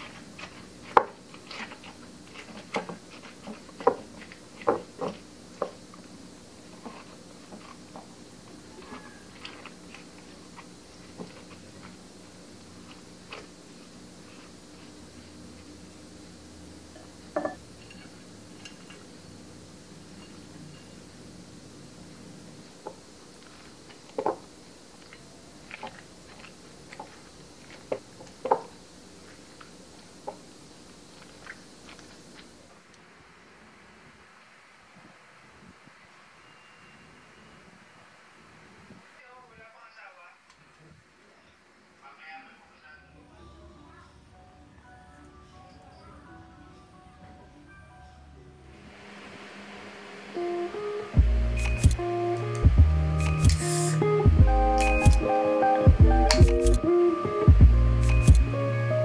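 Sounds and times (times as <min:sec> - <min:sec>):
utensils clicking: 0:51.6 - 0:54.0.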